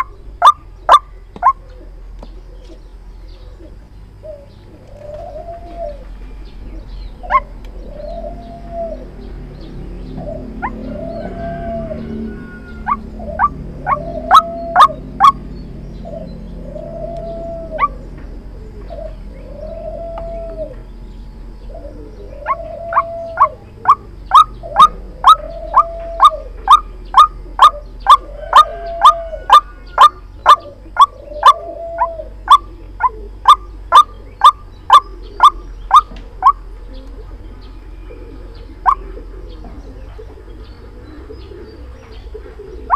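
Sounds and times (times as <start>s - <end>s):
waterhen calling: 0.0s - 1.6s, 6.7s - 9.1s, 10.2s - 15.4s, 21.8s - 37.3s, 38.1s - 40.4s.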